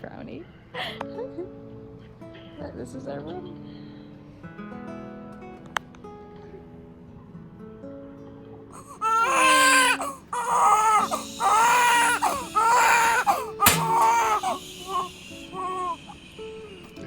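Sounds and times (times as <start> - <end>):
soft guitar music: 1.0 - 17.0
newborn baby crying: 8.8 - 17.0
sharp click: 13.6 - 14.4.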